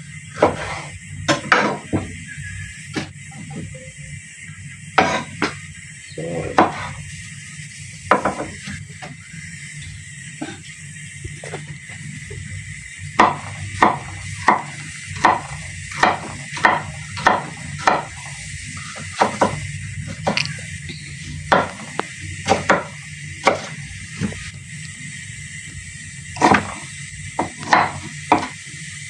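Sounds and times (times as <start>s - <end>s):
knife chopping on cutting board: 0.4s - 2.1s, 5.0s - 5.6s, 6.6s - 6.9s, 8.1s - 8.6s, 13.2s - 18.3s, 19.2s - 20.5s, 21.5s - 24.4s, 26.4s - 26.8s, 27.4s - 28.6s.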